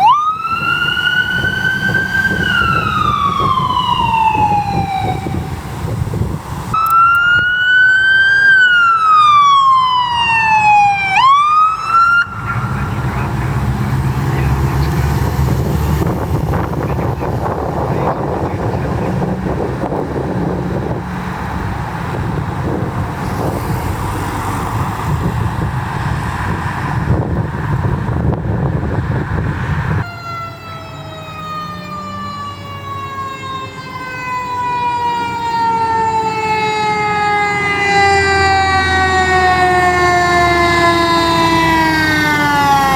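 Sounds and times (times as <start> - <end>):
emergency vehicle siren wailing: 0.0 - 42.9
road noise: 0.0 - 42.9
heavy vehicle engine: 0.5 - 6.8, 12.2 - 30.0.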